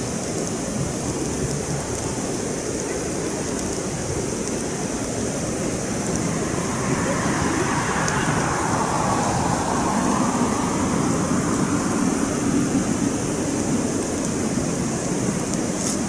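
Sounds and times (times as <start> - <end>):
campfire crackling: 0.0 - 16.0
distant vehicle passing: 4.9 - 15.5.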